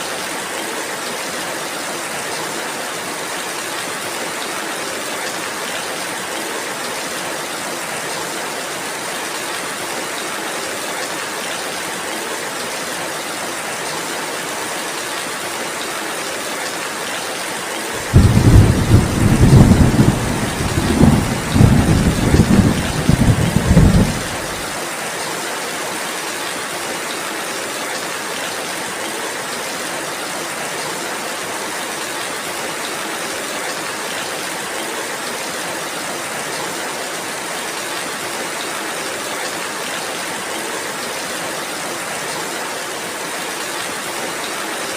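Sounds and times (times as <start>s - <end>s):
steady rainfall: 0.0s - 44.9s
deep rumble of thunder: 18.0s - 24.6s.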